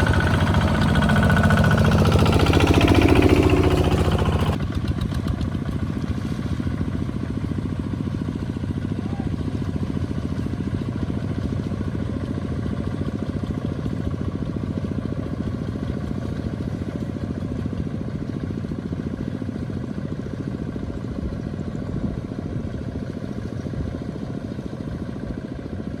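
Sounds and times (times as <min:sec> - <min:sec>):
tractor engine chugging: 0:00.0 - 0:06.1.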